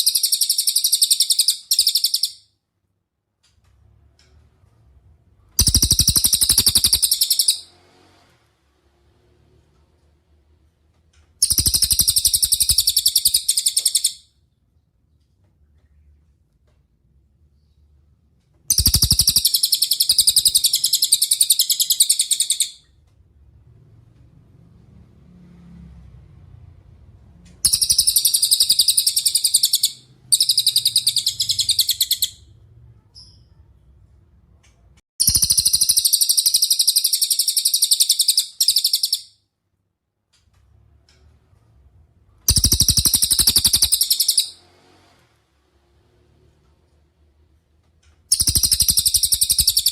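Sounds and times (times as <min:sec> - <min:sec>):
songbird trilling: 0:00.0 - 0:02.4, 0:05.6 - 0:07.6, 0:11.4 - 0:14.2, 0:18.7 - 0:22.7, 0:27.7 - 0:32.4, 0:42.5 - 0:44.5, 0:48.3 - 0:49.9.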